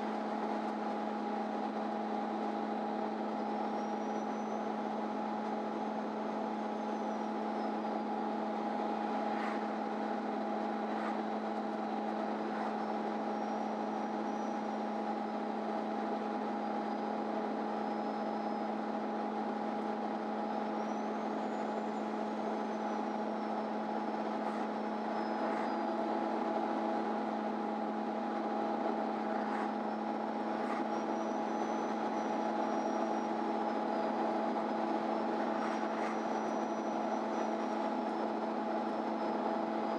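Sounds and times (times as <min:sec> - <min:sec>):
bus interior drone: 0:00.0 - 0:39.9.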